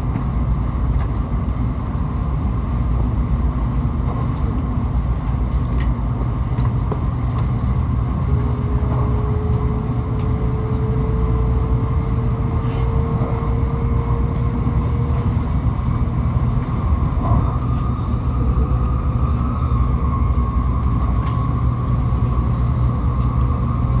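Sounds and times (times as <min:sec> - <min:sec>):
faint train whine: 0:00.0 - 0:24.0
train rumble and hiss: 0:00.0 - 0:24.0.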